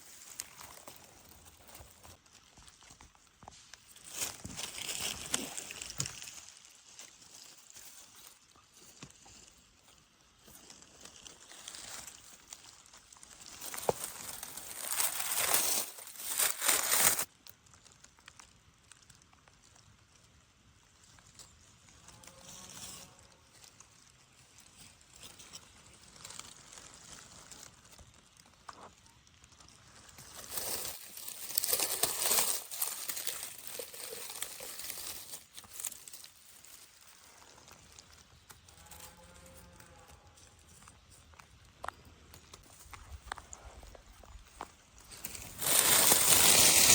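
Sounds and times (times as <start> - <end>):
dry leaves and twigs rustling: 0.0 - 46.9.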